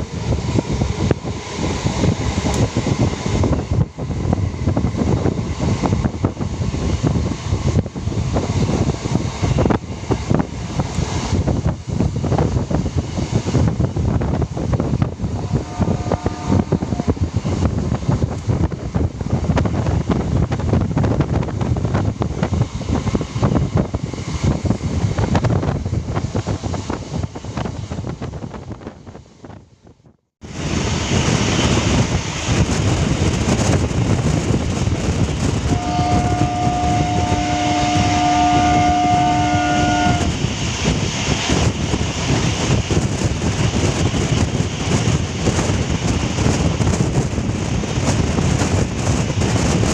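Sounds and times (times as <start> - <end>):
train rumbling on rails: 0.0 - 49.9
train horn: 15.3 - 17.2, 35.6 - 40.4.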